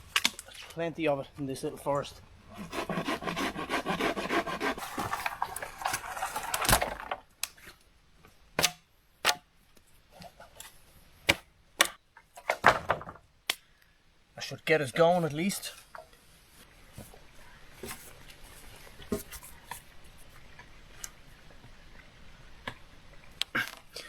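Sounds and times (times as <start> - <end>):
dry wood cracking: 0.0 - 0.8, 3.7 - 7.8
sharp wood snaps: 8.6 - 9.5, 11.3 - 12.0, 13.4 - 13.7.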